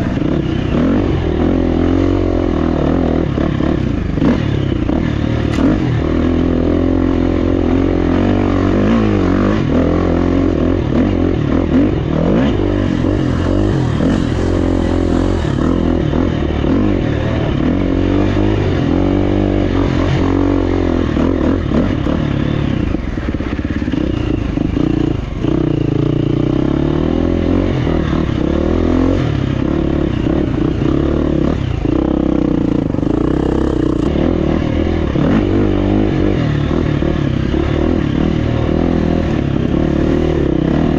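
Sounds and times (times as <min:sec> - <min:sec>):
bike rattling and scraping: 0:00.0 - 0:26.6
dirt bike engine revving: 0:00.0 - 0:40.9.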